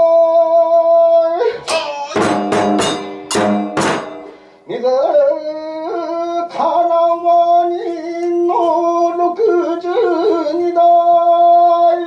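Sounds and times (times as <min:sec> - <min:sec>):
plucked string notes: 0:01.6 - 0:04.6.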